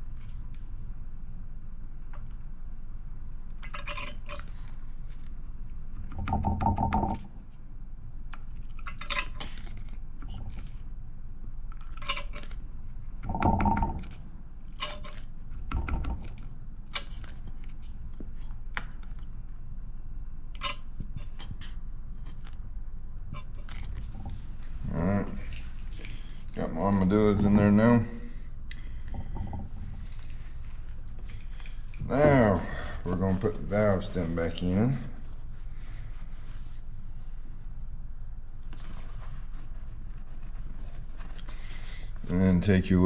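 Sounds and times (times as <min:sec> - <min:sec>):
clinks and knocks of tools: 0:13.2 - 0:16.4.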